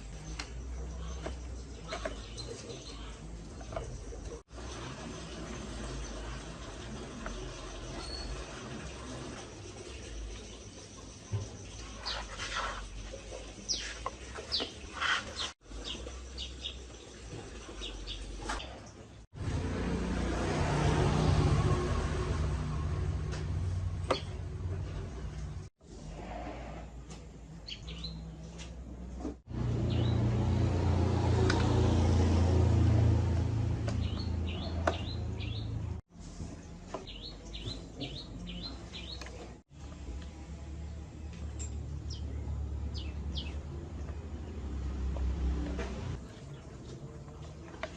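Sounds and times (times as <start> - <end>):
birds chirping: 0.0 - 19.2, 24.0 - 25.6, 27.6 - 28.6, 29.7 - 30.9, 32.6 - 39.6, 41.2 - 45.0.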